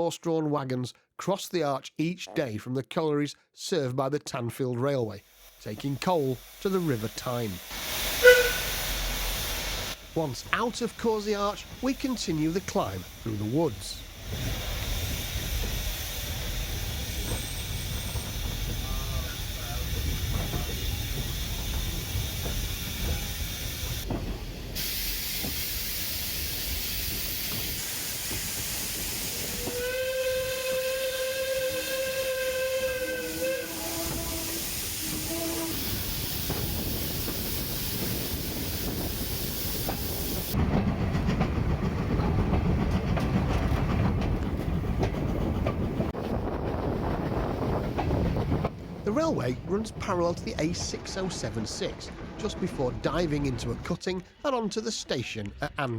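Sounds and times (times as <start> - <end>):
steam locomotive hissing: 5.2 - 46.1, 49.1 - 53.9
steam whistle blast: 8.0 - 9.1, 29.5 - 37.2.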